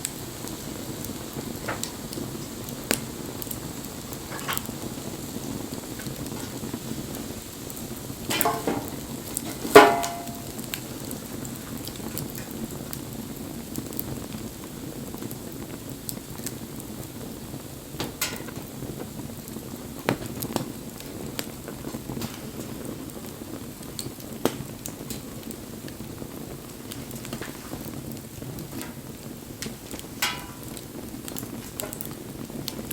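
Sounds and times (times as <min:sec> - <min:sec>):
wood fire crackling: 0:00.0 - 0:32.9
sharp crack with ring: 0:09.8 - 0:10.7, 0:30.2 - 0:30.8.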